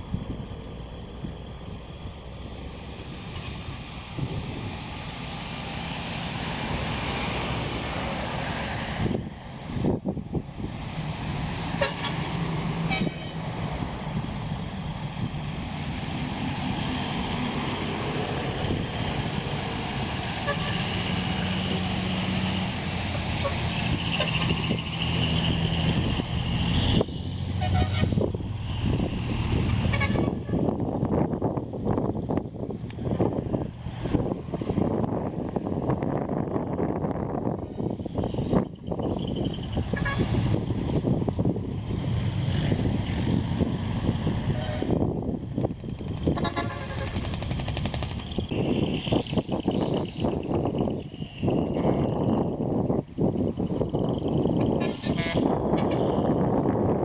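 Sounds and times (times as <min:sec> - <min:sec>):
hiss: 0:00.0 - 0:27.2
trucks rumbling: 0:00.0 - 0:57.0
wind buffeting microphone: 0:00.0 - 0:57.0
low thumps from gusts: 0:28.0 - 0:54.8.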